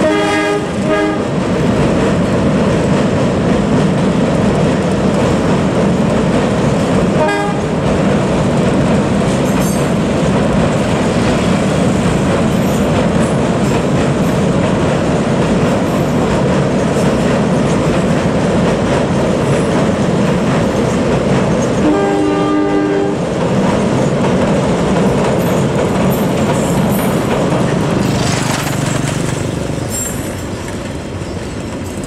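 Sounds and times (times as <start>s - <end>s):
two-tone train horn: 0.0s - 1.4s, 7.2s - 7.8s, 21.8s - 23.2s
train wheels clattering on rail: 0.0s - 32.0s.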